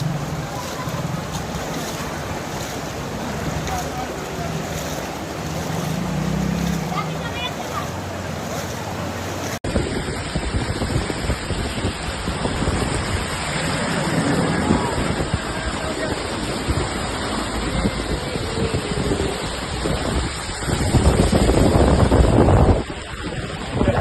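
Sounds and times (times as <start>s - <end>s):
heavy rain: 0.0s - 24.0s
running water: 0.0s - 24.0s
wind buffeting microphone: 9.0s - 24.0s.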